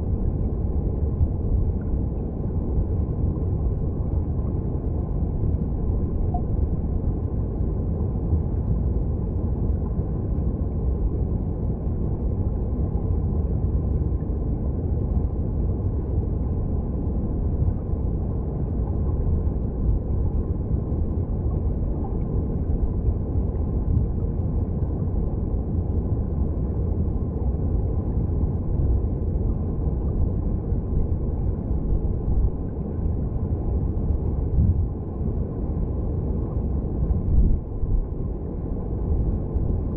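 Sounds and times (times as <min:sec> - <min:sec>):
underwater stream rumble: 0:00.0 - 0:39.9.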